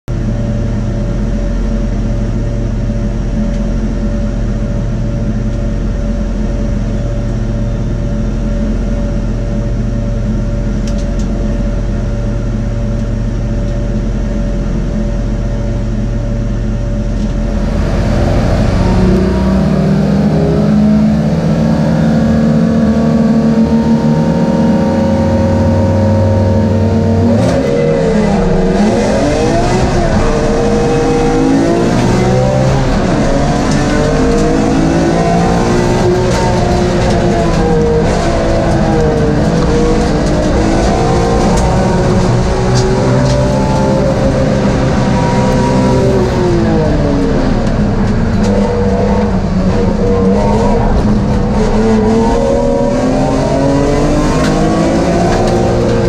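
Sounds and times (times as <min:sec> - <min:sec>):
race car engine idling: 0:00.1 - 0:53.1.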